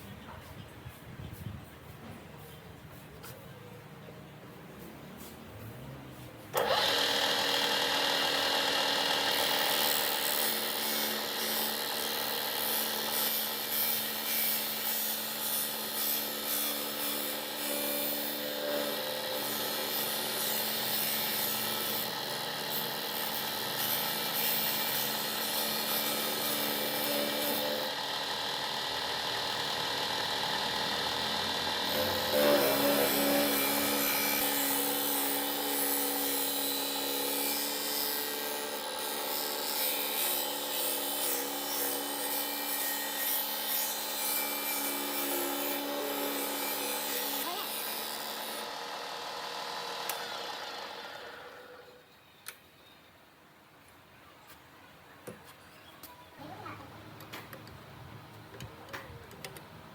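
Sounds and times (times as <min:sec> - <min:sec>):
electric grinder humming and whining: 0:06.6 - 0:52.0.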